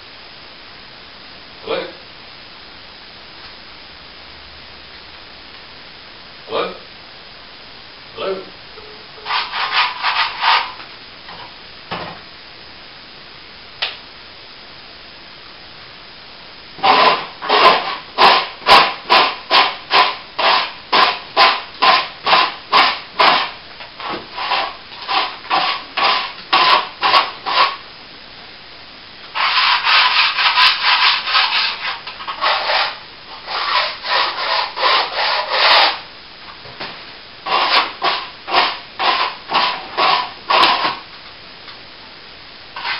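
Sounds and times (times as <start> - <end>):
sanding plaster by hand: 9.2 - 10.8, 16.8 - 27.8, 29.4 - 36.0, 37.5 - 41.0.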